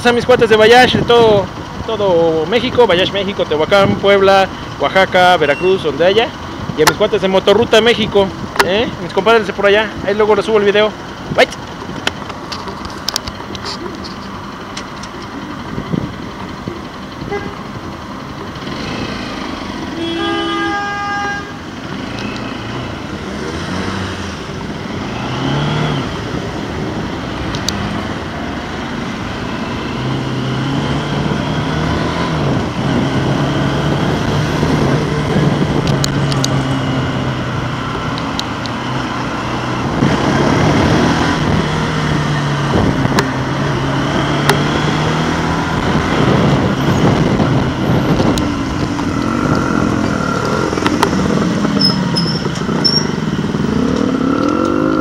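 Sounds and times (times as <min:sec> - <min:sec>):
motorcycle engine: 0:00.0 - 0:55.0
vehicle horn toot: 0:17.2 - 0:17.6, 0:19.9 - 0:21.6.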